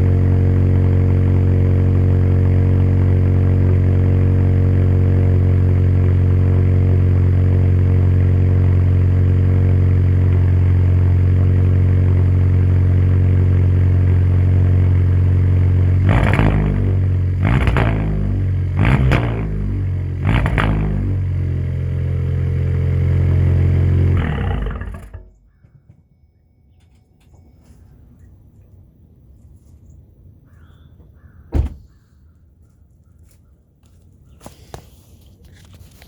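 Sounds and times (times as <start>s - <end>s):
engine revving: 0.0s - 25.5s
car engine idling: 0.0s - 25.8s.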